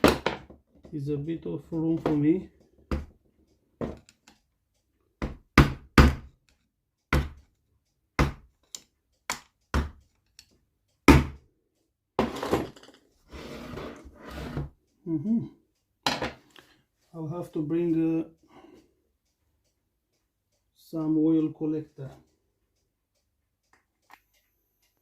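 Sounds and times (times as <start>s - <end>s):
scraping rustling sound: 12.2s - 14.8s.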